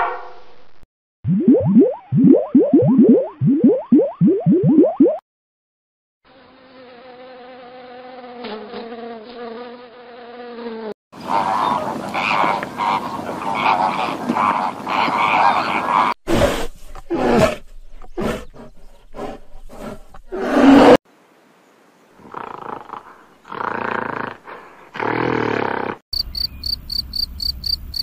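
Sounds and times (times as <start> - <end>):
flies buzzing: 6.3 - 11.0
flamingos honking: 11.2 - 16.2.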